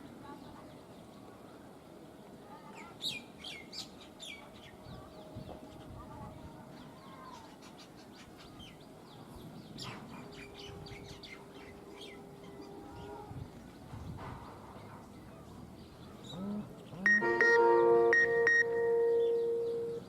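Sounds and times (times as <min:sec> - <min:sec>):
small birds chirping: 0:02.6 - 0:17.2.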